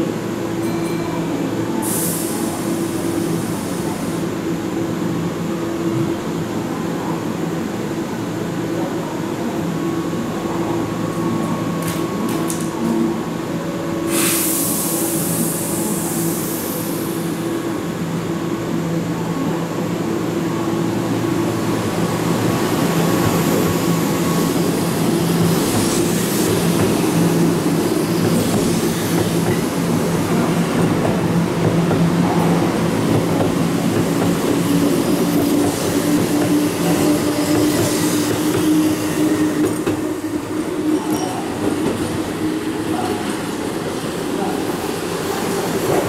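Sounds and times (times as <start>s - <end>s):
electric train machinery hum: 0.0s - 46.0s
air release hiss: 1.8s - 4.3s, 14.1s - 17.3s.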